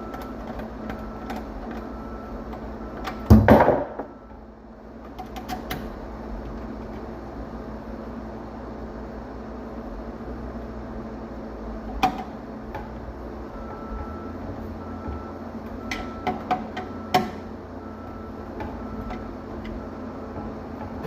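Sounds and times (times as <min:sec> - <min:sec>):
steady low hum: 0:00.0 - 0:21.0
hard objects clicking and knocking: 0:02.5 - 0:04.2.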